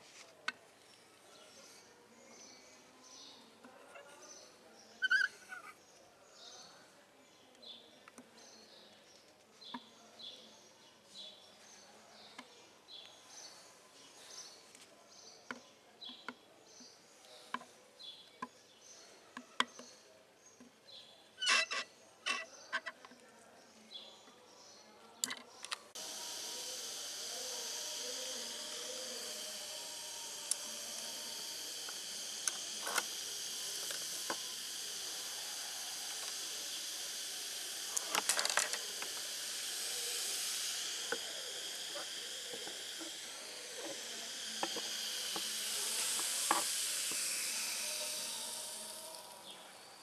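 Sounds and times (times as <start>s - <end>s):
steady hiss: 0.0s - 3.6s, 25.2s - 50.0s
small bird chirping: 2.4s - 5.8s.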